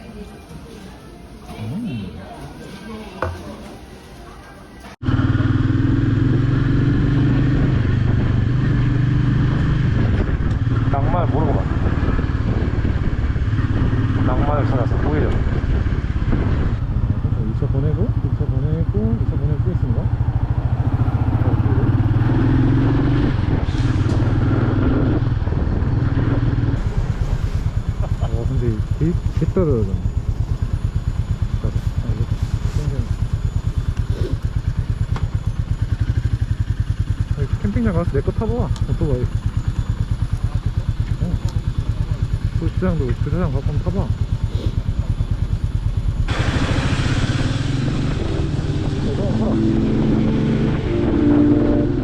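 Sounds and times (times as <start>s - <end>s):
motorcycle engine cruising: 5.0s - 52.0s.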